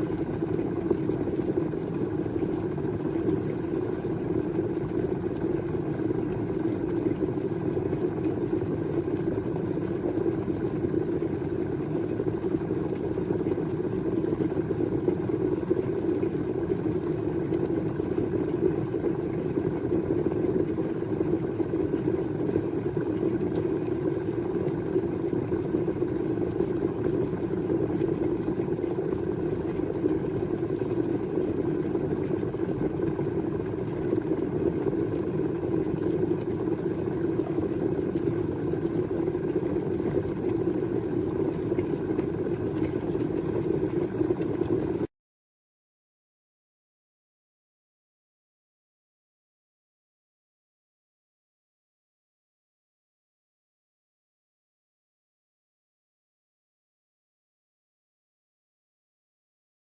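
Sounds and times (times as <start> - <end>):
electric kettle rumbling: 0.0 - 45.1.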